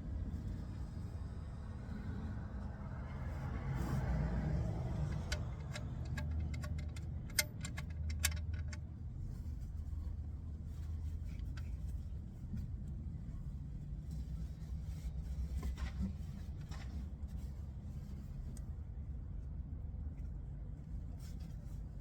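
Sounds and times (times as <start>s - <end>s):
metallic clicks and clinks: 5.1s - 8.8s.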